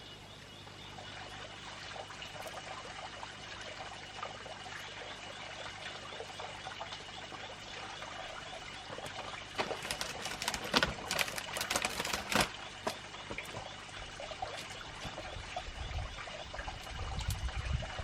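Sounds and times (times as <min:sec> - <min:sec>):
water pouring and trickling: 0:01.0 - 0:18.0.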